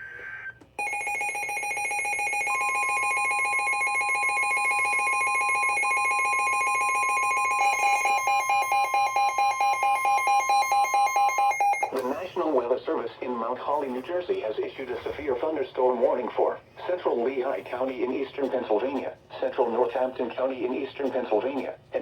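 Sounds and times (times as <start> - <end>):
buzzing electronic alarm: 0.0 - 11.9
steady alarm tone: 0.0 - 12.0.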